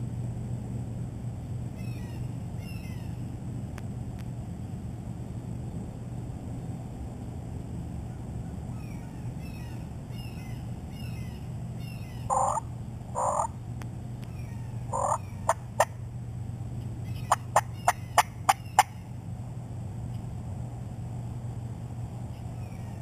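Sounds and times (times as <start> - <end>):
low background hum: 0.0 - 23.0
songbirds chirping: 1.4 - 3.4, 8.0 - 23.0
turkey calling: 8.8 - 13.6, 14.3 - 15.9, 17.0 - 19.0.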